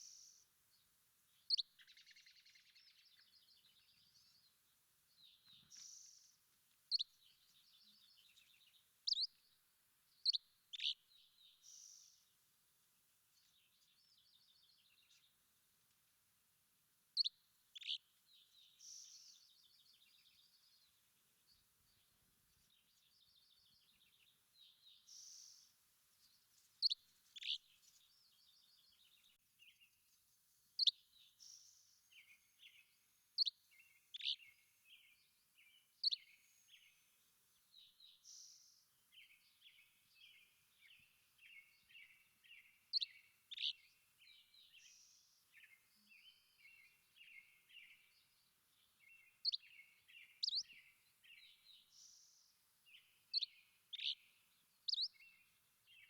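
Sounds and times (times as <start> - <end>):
bird chirps and trills: 6.9 - 9.4, 30.8 - 32.8, 33.4 - 34.6, 41.0 - 43.9, 49.2 - 52.4, 53.0 - 55.4.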